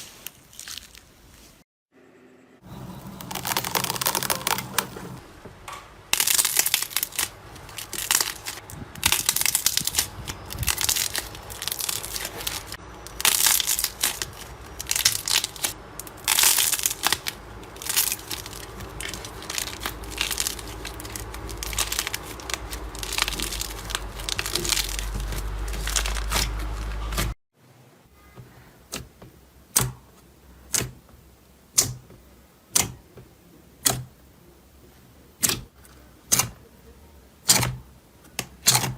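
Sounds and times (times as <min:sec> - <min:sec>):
slime squishing and crackling: 0:00.0 - 0:01.4, 0:02.8 - 0:05.2, 0:06.1 - 0:27.4.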